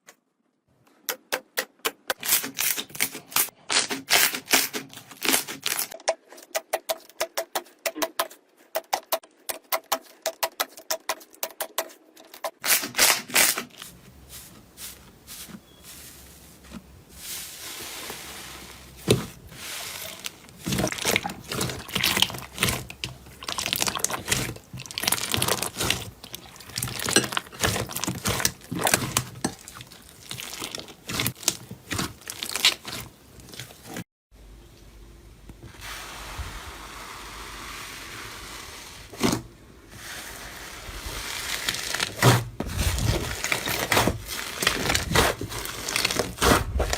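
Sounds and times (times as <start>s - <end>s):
slime squishing: 13.4s - 34.0s, 41.0s - 46.9s
slime crackling and popping: 20.2s - 34.0s, 41.2s - 46.9s.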